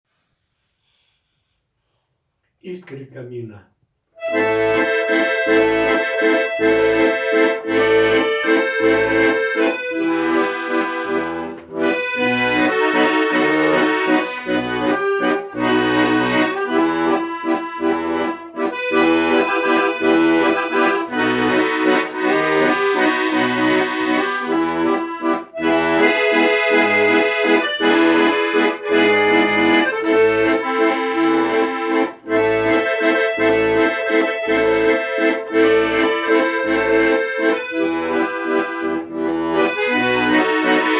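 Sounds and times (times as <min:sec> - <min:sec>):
accordion chanson tune: 0:04.2 - 0:40.9.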